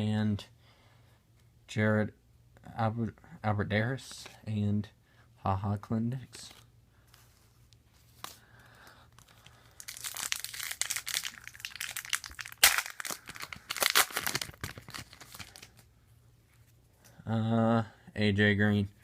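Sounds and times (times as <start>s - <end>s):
wrapper tearing and crinkling: 9.2s - 15.8s.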